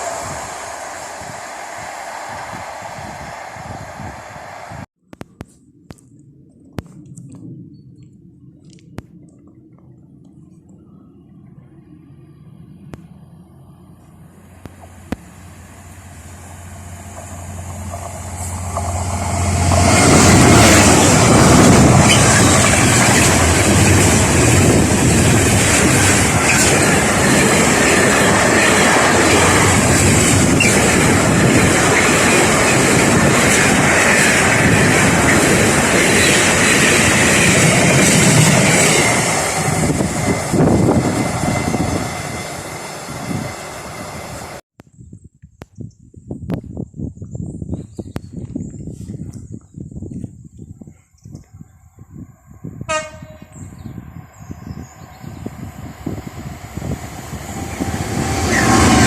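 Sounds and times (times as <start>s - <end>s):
train passing on rails: 0.0s - 4.9s, 11.6s - 44.6s, 52.0s - 59.0s.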